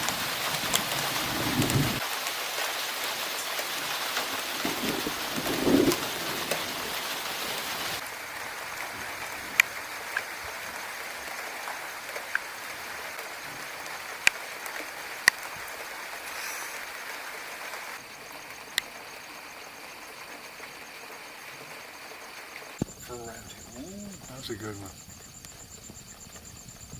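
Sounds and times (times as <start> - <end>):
steady rain falling: 0.0 - 26.9
sharp drips landing close by: 2.0 - 15.6.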